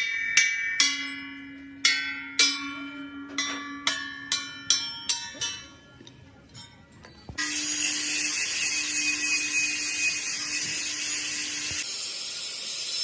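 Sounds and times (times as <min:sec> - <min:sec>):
hammer ringing on steel: 0:00.0 - 0:06.8.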